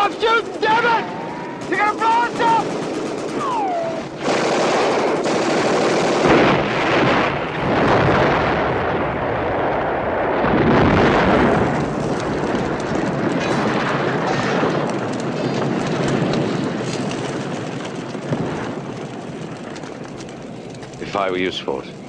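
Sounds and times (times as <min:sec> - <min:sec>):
automatic gunfire: 0:00.0 - 0:07.9.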